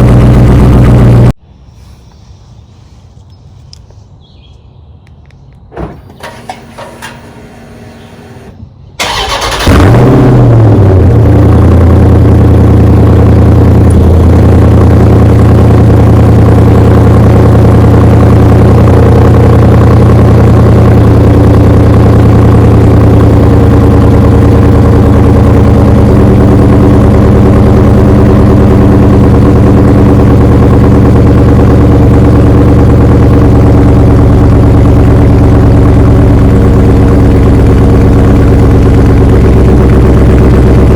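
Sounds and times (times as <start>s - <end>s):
car engine starting and idling: 0.0s - 1.9s, 5.7s - 40.9s
car engine cranking: 5.8s - 10.8s.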